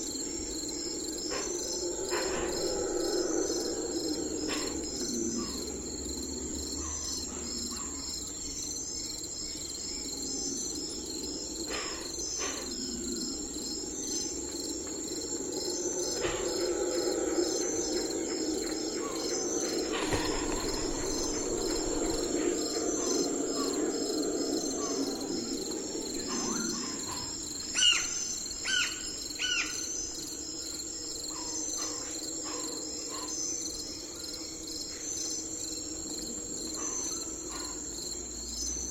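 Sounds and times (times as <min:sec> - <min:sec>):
low continuous rushing: 0:00.0 - 0:28.6
downward-sweeping bird calls: 0:00.0 - 0:30.2
crickets trilling: 0:00.0 - 0:38.9.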